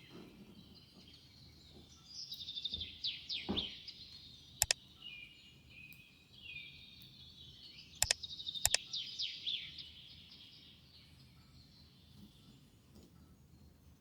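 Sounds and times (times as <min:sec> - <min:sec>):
small birds chirping: 0:00.0 - 0:13.8
sharp double clicks: 0:08.0 - 0:08.8.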